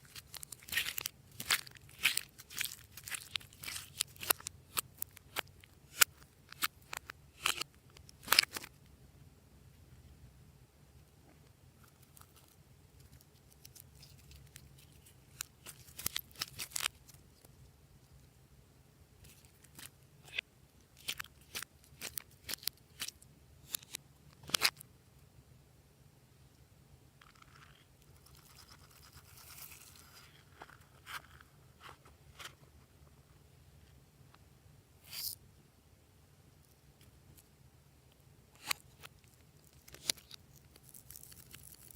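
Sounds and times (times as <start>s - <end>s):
slime crackling and scraping: 0.0s - 8.8s, 11.8s - 17.5s, 19.2s - 24.8s, 38.6s - 41.9s.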